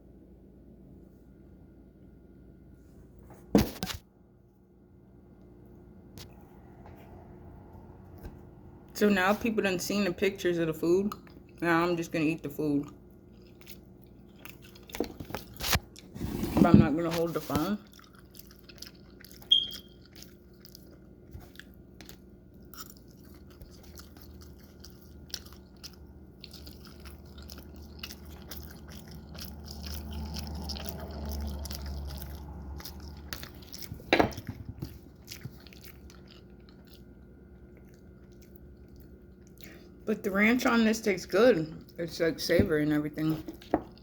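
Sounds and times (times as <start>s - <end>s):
chewing and biting waffles: 11.1s - 16.2s, 17.1s - 40.0s.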